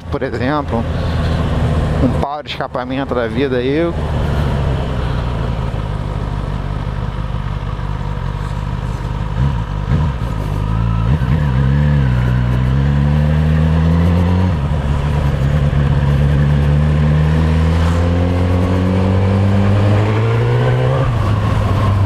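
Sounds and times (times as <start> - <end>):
motorcycle engine running: 3.2 - 22.0.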